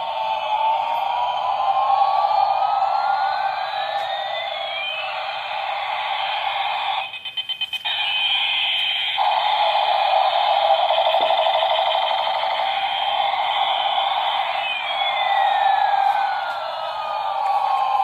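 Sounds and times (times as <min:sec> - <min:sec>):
toy airplane electronic sound effects: 0:00.0 - 0:18.0.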